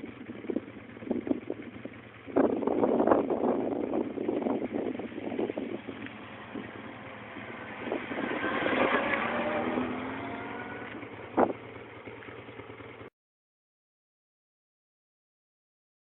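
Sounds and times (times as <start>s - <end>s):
vehicle engine passing by: 5.0s - 11.6s.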